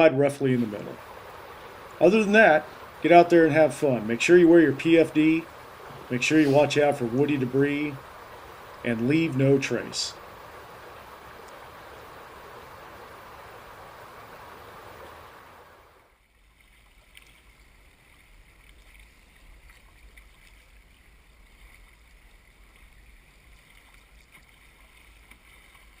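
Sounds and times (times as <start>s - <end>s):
river water rushing: 0.0s - 26.0s
water lapping: 0.0s - 26.0s
small ticks: 11.4s - 11.6s, 16.6s - 26.0s.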